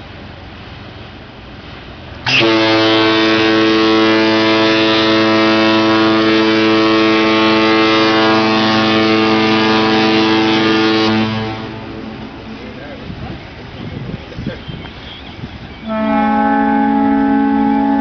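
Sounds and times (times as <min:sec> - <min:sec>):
ship's horn blast: 0:02.2 - 0:12.7, 0:14.7 - 0:18.0.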